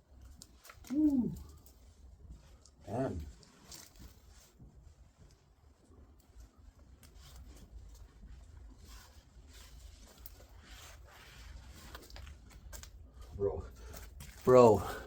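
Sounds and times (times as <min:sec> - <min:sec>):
towel rubbing on car paint: 0:06.8 - 0:12.7.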